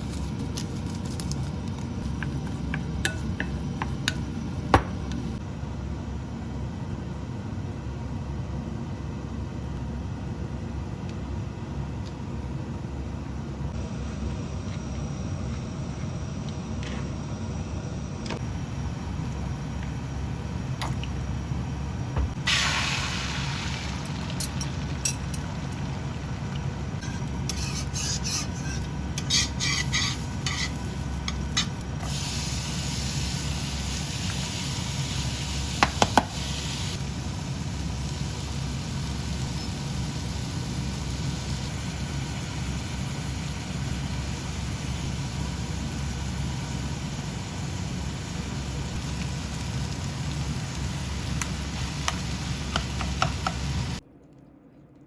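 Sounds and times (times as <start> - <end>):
steady low hum: 0.0 - 34.2
sizzling: 18.4 - 54.0
utensil scraping a pan: 27.0 - 30.8.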